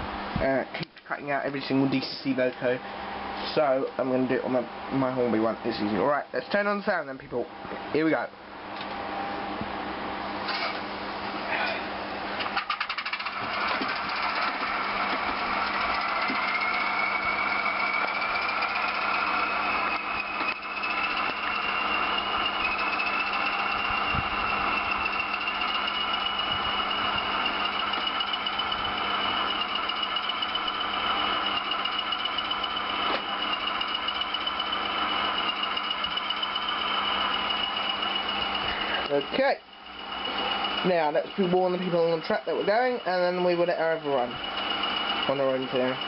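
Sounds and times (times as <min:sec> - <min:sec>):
model diesel engine start-up: 0:12.5 - 0:46.0
rapid clicking: 0:12.5 - 0:46.0.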